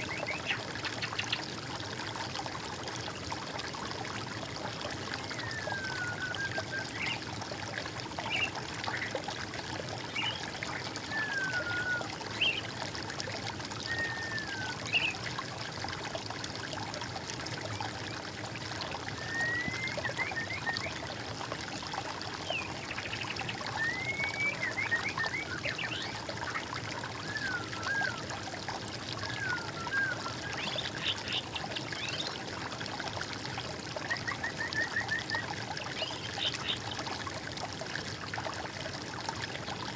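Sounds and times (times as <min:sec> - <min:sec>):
water trickling: 0:00.0 - 0:39.9
songbirds calling: 0:29.2 - 0:32.4.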